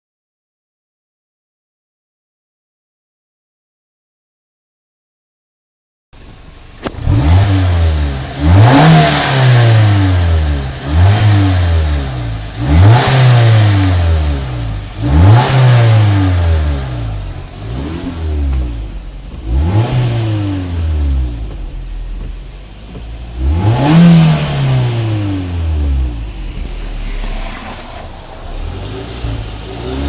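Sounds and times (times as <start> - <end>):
car engine revving: 6.2 - 30.0.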